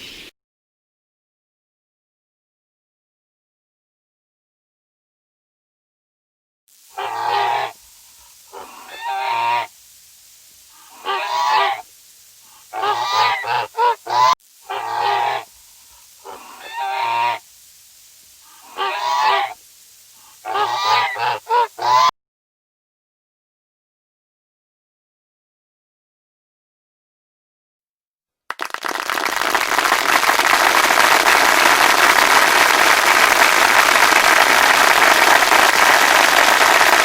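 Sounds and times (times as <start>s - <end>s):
animal harsh calls: 7.0s - 9.8s, 10.7s - 11.9s, 12.5s - 17.4s, 18.4s - 19.6s, 20.2s - 22.1s.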